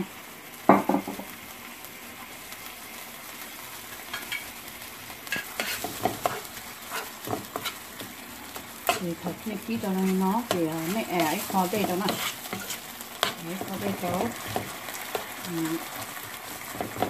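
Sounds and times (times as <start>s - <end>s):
food sizzling in oil: 0.0s - 17.0s
spoon scraping a pan: 3.9s - 4.5s, 5.3s - 17.0s.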